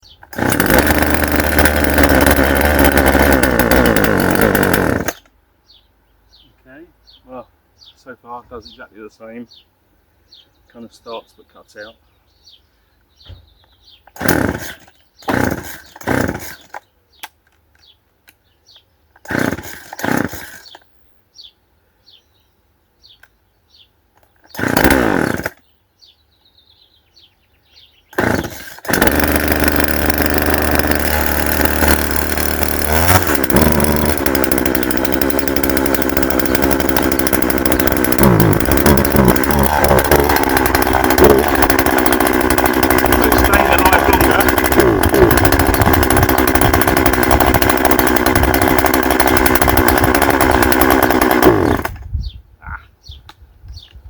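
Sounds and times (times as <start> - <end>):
chainsaw starting and running: 0.0 - 5.3, 14.0 - 16.9, 19.2 - 20.9, 24.3 - 25.7, 28.1 - 52.1.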